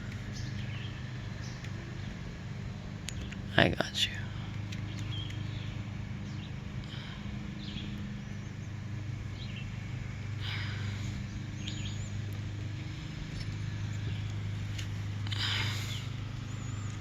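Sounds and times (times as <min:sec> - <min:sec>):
steady low hum: 0:00.0 - 0:17.0
bird chirps: 0:00.2 - 0:02.2, 0:04.8 - 0:09.9, 0:10.7 - 0:12.4.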